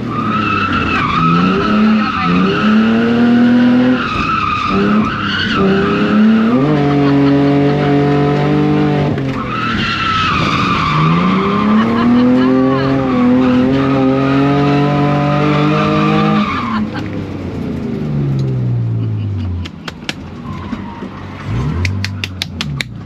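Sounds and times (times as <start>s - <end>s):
car engine revving hard: 0.0s - 9.6s, 10.2s - 17.0s.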